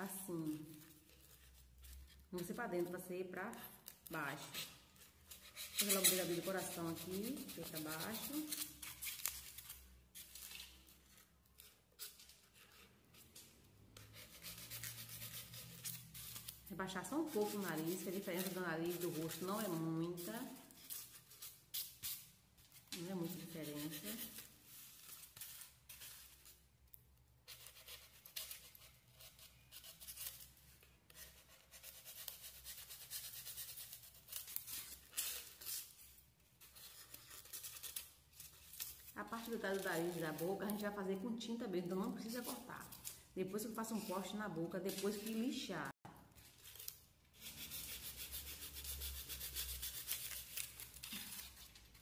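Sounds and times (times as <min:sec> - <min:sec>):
knife scraping styrofoam: 0:00.5 - 0:02.9, 0:03.5 - 0:26.6, 0:27.4 - 0:52.0
knife shaving foam: 0:04.4 - 0:09.7, 0:14.0 - 0:22.3, 0:23.0 - 0:26.5.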